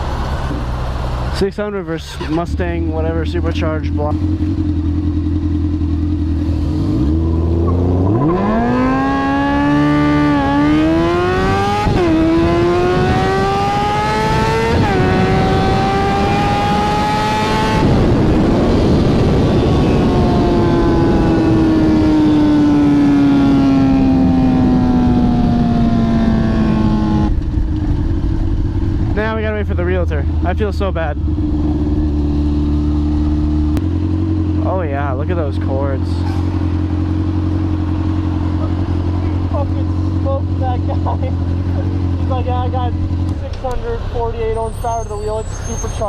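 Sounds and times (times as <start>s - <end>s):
motorcycle engine accelerating: 0.0s - 46.0s
rushing wind: 2.0s - 34.5s.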